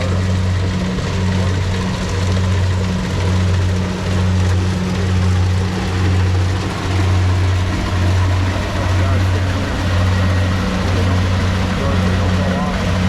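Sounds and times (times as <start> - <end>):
combine harvester engine droning: 0.0 - 13.0.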